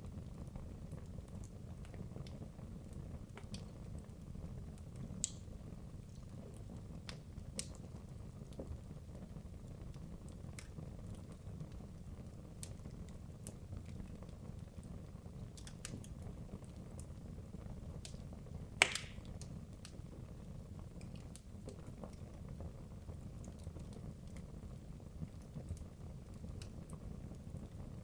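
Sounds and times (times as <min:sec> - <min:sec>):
fire crackling: 0:00.0 - 0:28.0
fireplace flames rumbling: 0:00.0 - 0:28.0
loud pop from burning log: 0:18.8 - 0:19.3.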